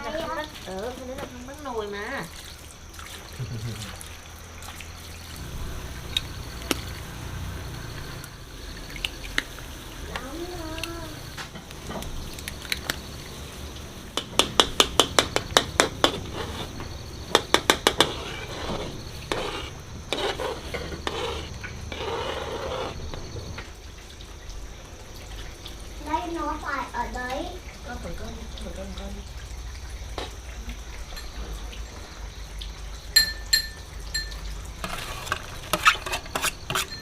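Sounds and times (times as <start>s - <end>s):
utensil tapping against a bowl: 14.2s - 16.2s, 17.3s - 18.2s
dishes and pans clattering: 33.2s - 37.0s.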